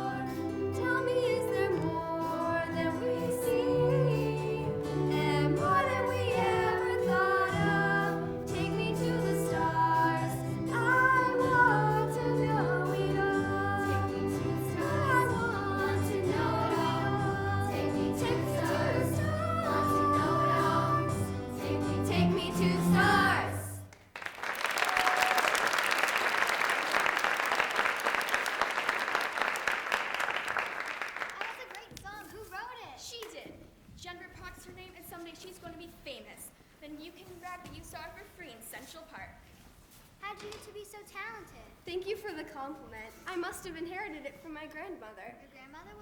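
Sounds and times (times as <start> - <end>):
person singing: 0.0 - 23.8
instrumental accompaniment with bass: 1.9 - 23.7
audience applause: 23.9 - 31.9.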